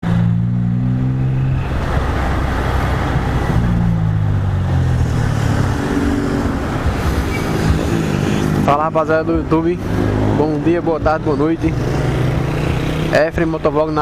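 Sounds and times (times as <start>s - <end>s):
wind rush on microphone: 0.9s - 8.7s.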